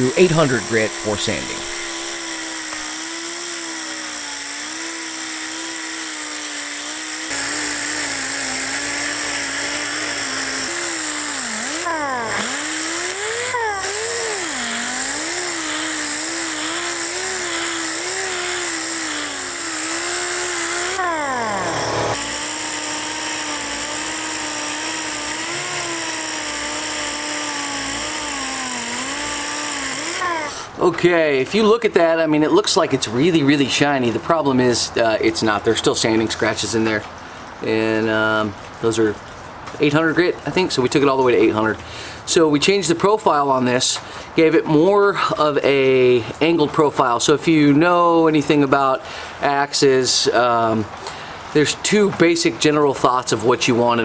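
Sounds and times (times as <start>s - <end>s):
power sander whining on metal: 0.0s - 30.8s.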